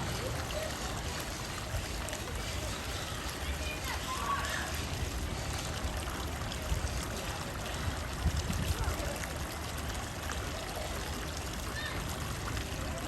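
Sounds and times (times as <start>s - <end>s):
faint indistinct voices: 0.0s - 13.0s
trickling splashing water: 0.0s - 13.0s.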